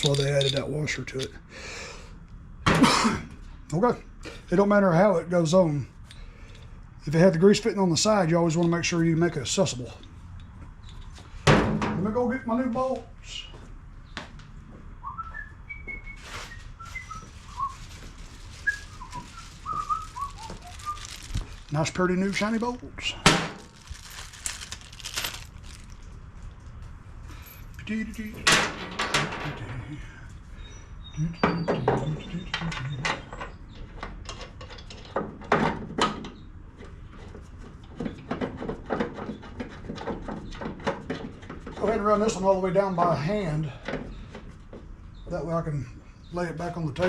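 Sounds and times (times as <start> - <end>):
steel bolts clinking on metal: 0.0 - 1.4
man whistling a tune: 15.0 - 17.8, 18.6 - 21.0.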